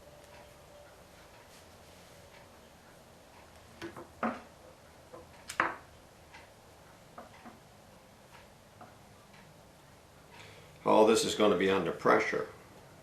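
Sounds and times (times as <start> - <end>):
light clicks and knocks of parts: 0.2 - 9.6.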